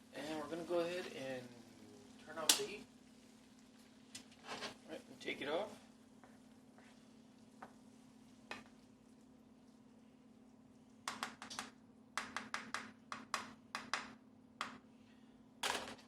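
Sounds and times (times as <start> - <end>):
scrape: 4.4 - 4.8.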